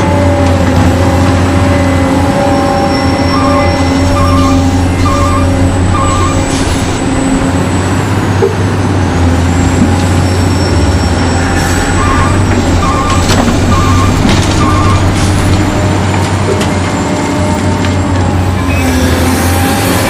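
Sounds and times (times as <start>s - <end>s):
short repeating beeps: 3.3s - 6.5s.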